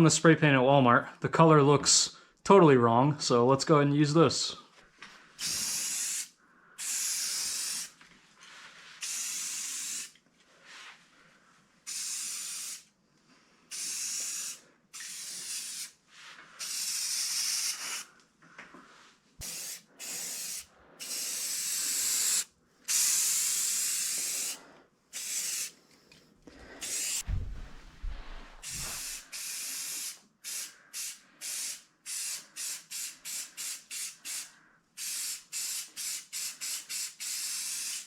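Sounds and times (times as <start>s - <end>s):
spray paint can hissing: 5.4s - 8.0s, 9.0s - 10.2s, 11.9s - 12.9s, 13.7s - 16.0s, 16.6s - 18.1s, 19.4s - 25.8s, 26.8s - 27.2s, 28.6s - 38.0s.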